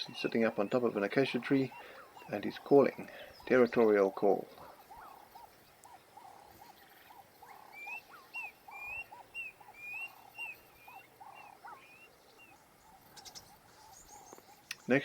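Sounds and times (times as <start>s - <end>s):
lower repeated bird calls: 0.0s - 15.0s.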